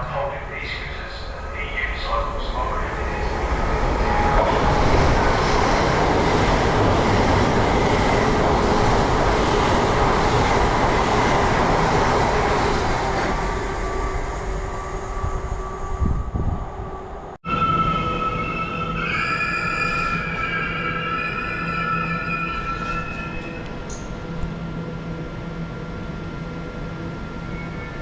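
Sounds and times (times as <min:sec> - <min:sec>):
train rumbling along tracks: 0:00.0 - 0:28.0
music: 0:17.4 - 0:23.5.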